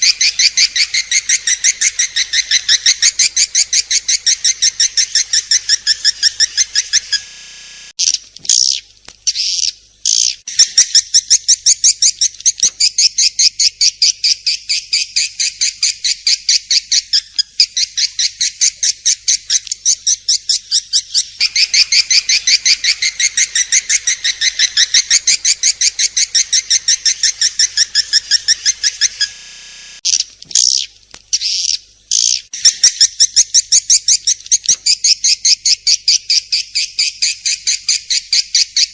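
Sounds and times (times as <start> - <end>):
swiftlet high chirps: 21.4 - 30.0.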